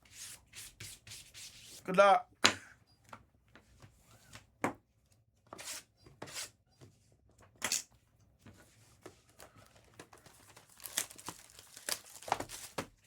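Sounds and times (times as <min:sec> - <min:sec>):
card packs rustling and tearing: 0:09.2 - 0:13.0.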